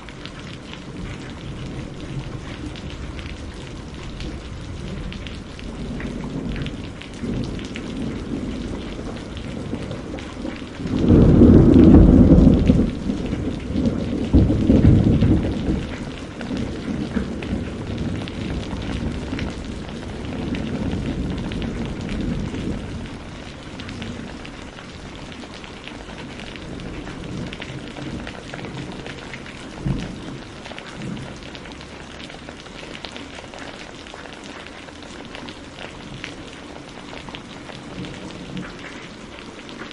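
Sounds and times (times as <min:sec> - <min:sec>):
steady rain: 0:00.0 - 0:39.9
thunder rumbles: 0:00.0 - 0:39.9
thunder clap: 0:00.9 - 0:25.1.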